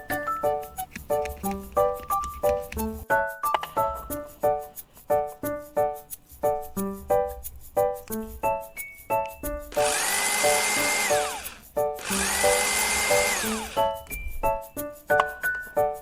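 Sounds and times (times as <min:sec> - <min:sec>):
small motor whirring: 0:09.7 - 0:14.0.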